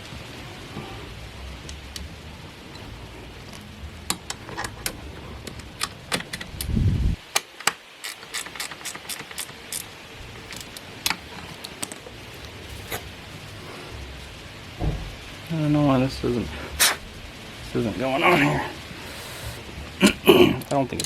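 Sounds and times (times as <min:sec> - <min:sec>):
metal parts and tools clinking: 0:07.3 - 0:13.9
heavy thump: 0:14.8 - 0:15.4.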